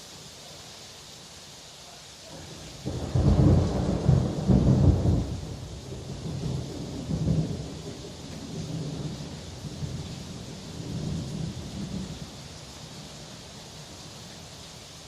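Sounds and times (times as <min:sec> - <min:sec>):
heavy rain: 0:00.0 - 0:15.0
thunder clap and rumble: 0:02.9 - 0:12.3.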